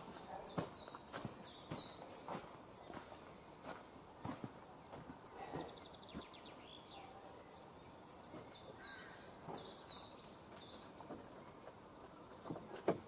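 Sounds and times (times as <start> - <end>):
faint bird chirps: 4.4 - 12.9.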